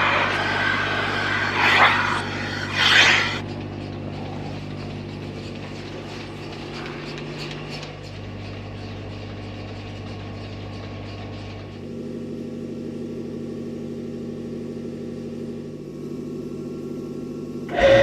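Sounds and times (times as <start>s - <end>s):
loud rushing burst: 0.0s - 3.4s
machine motor humming: 0.0s - 8.7s.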